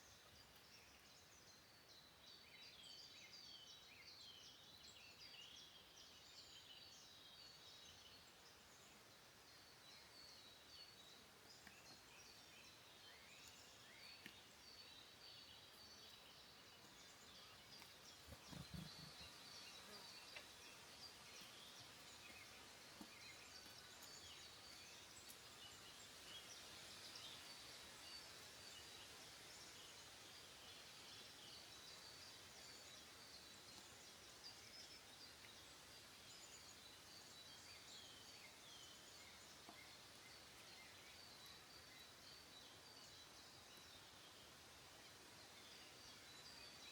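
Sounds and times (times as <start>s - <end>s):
songbirds chirping: 0.0s - 46.9s
steady hiss: 10.6s - 46.9s.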